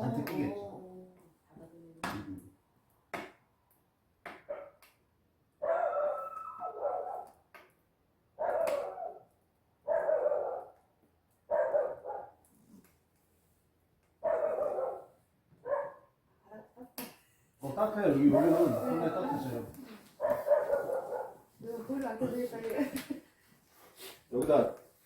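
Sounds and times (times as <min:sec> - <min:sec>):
dog barking: 0:04.4 - 0:04.8, 0:05.6 - 0:07.4, 0:08.4 - 0:10.8, 0:11.5 - 0:12.4, 0:14.2 - 0:16.2, 0:20.2 - 0:21.5.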